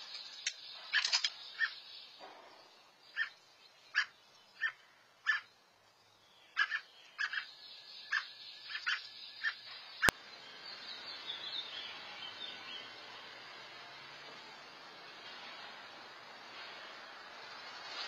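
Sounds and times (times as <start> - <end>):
steady hiss: 0.0 - 6.3, 7.5 - 18.0
bird chirping: 0.0 - 13.6.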